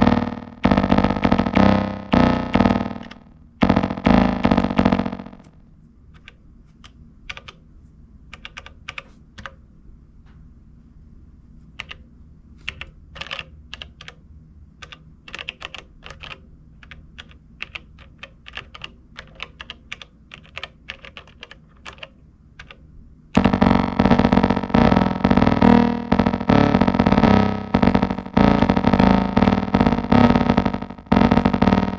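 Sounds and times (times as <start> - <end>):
buttons clicking: 0.0 - 5.6, 23.4 - 31.9
distorted synth bass line: 0.0 - 5.6, 23.4 - 31.9.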